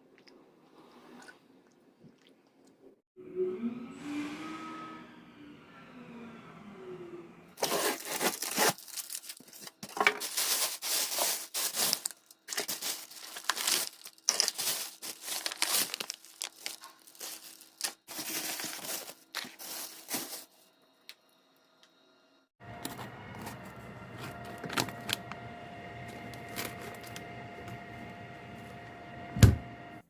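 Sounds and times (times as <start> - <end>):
plastic packaging crinkling and tearing: 7.6 - 20.6, 26.3 - 27.2.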